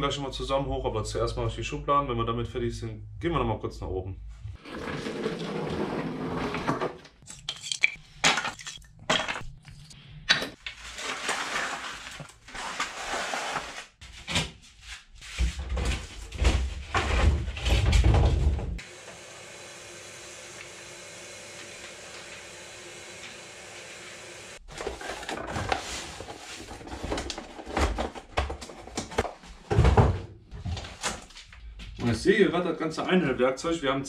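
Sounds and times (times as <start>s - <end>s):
tools clattering and knocking: 7.2s - 10.6s.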